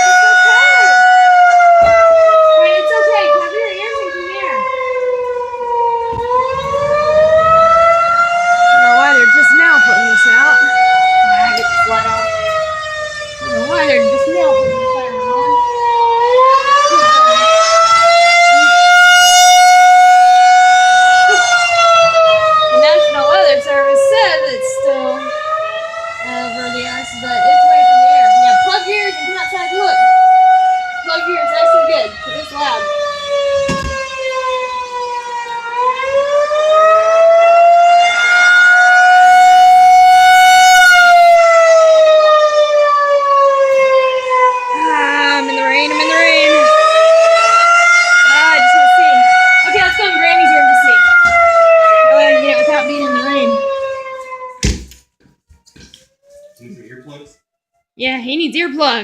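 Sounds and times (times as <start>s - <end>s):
warning siren wailing: 0.0s - 59.0s.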